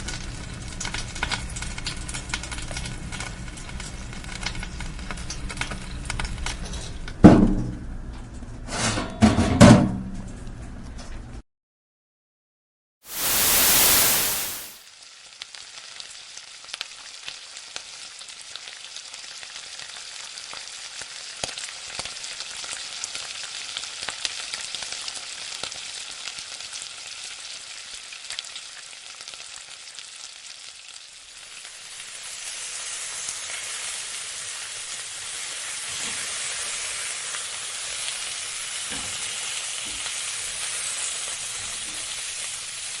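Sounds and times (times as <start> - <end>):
loud rush of noise: 13.1 - 14.8
food sizzling in hot oil: 13.1 - 43.0.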